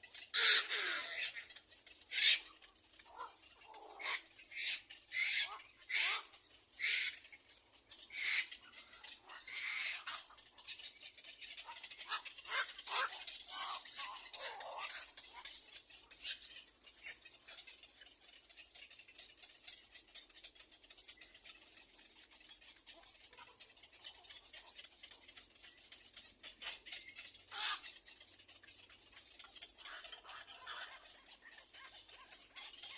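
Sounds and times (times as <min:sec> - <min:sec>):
bird squawk: 0:00.0 - 0:18.4, 0:26.6 - 0:28.0
chicks ticking and rustling: 0:00.0 - 0:32.9.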